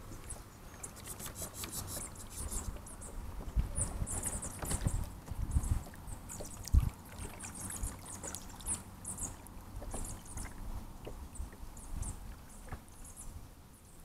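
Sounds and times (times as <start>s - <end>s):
kayak paddling knocks and thuds: 2.7s - 13.0s.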